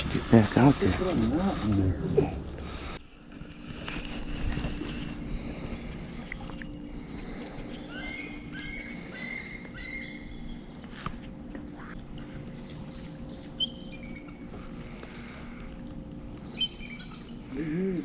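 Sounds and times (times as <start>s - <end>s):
steady low hum: 0.0s - 18.0s
birds chirping: 4.8s - 10.9s, 11.8s - 18.0s.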